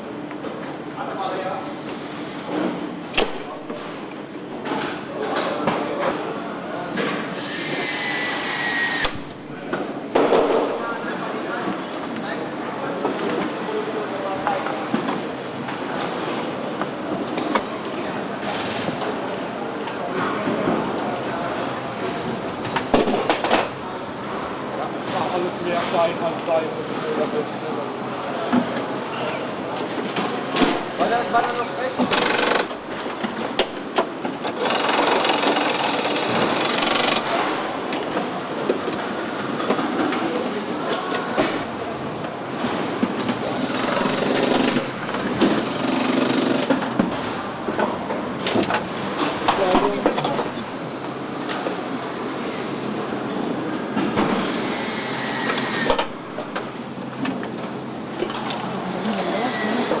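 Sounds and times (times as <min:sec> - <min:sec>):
machinery hum: 0:00.0 - 0:14.2, 0:41.6 - 1:00.0
machine clatter: 0:34.3 - 0:37.6.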